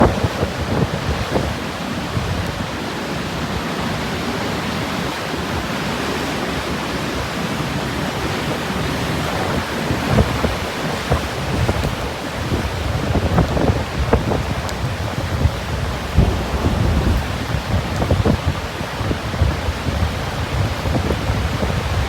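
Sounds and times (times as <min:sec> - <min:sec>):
wind buffeting microphone: 0:09.2 - 0:22.0
strong wind blowing: 0:11.1 - 0:22.0
surf rushing: 0:15.2 - 0:19.2.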